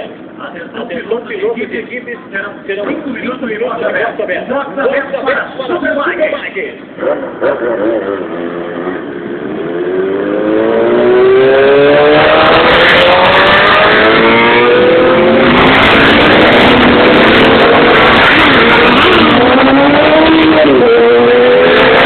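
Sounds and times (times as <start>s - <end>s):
motorcycle engines accelerating hard: 7.0s - 22.0s.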